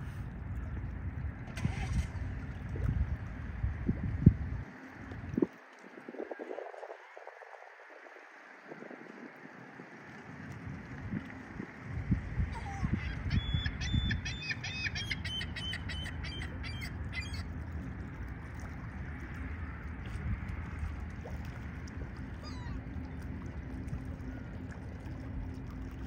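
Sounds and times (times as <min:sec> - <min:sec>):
speedboat droning: 0:00.0 - 0:26.0
wind on microphone: 0:01.4 - 0:09.8, 0:10.6 - 0:17.5
water bird harsh calls: 0:12.5 - 0:17.9, 0:22.2 - 0:23.3.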